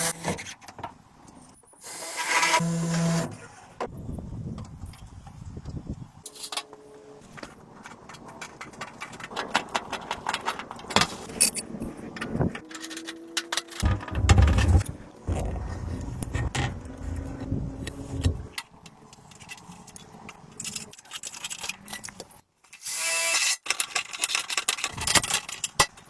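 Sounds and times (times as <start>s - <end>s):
hard objects clicking and rattling: 7.8s - 22.4s, 23.6s - 26.0s
heavy low knocking: 13.8s - 18.5s.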